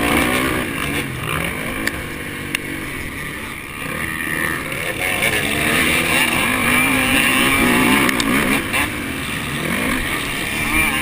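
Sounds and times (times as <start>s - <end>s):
motocross bike engine revving: 0.0s - 11.0s
track noise: 0.0s - 11.0s
wind: 0.0s - 11.0s.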